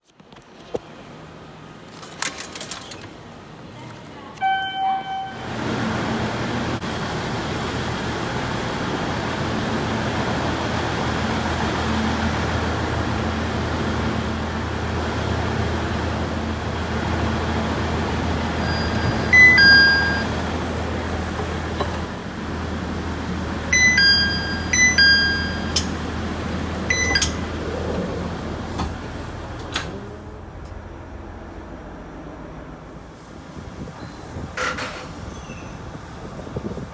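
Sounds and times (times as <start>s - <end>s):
diesel railcar engine hum: 2.9s - 36.9s
high electronic beeps: 18.6s - 20.3s, 23.7s - 25.9s, 26.9s - 27.4s
short chime: 18.6s - 20.3s, 23.8s - 26.0s.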